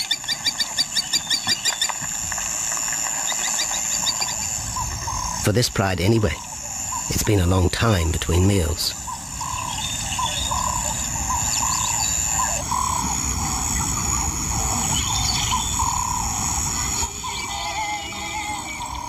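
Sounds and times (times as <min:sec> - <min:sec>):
high insect drone: 0:00.0 - 0:19.0
repeated animal call: 0:08.4 - 0:19.0.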